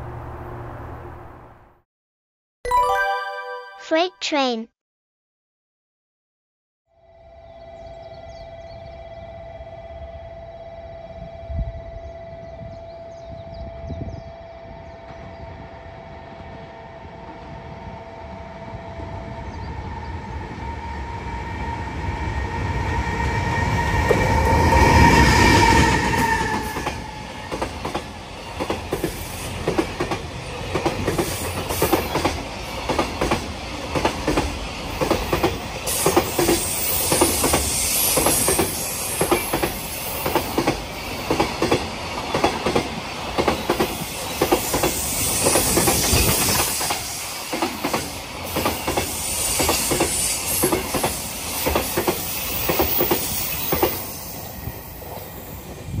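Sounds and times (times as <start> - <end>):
electric locomotive humming: 0.0 - 1.8, 7.0 - 56.0.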